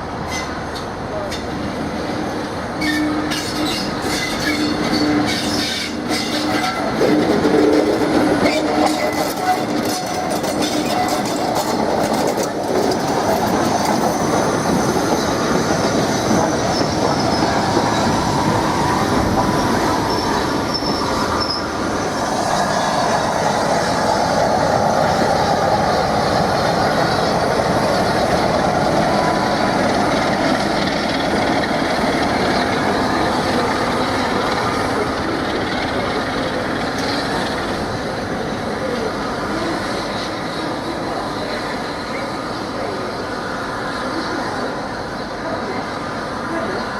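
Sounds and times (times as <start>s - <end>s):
train wheels squealing on rails: 0.2s - 46.9s
wheels clacking over rail joints: 2.8s - 18.5s.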